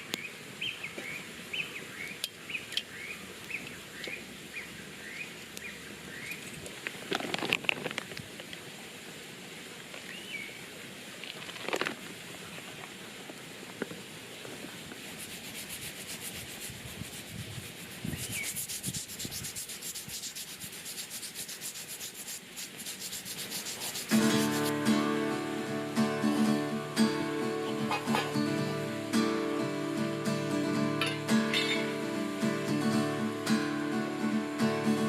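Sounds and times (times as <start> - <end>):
rapid rubbing or scraping: 15.0 - 24.8
acoustic guitar music: 24.0 - 35.0.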